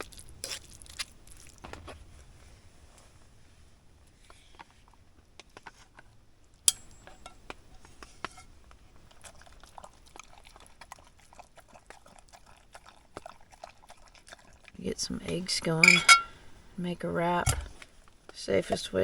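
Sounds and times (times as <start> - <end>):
sharp metallic clink: 6.7 - 7.4, 15.8 - 16.4
dog chewing and crunching: 8.8 - 15.5.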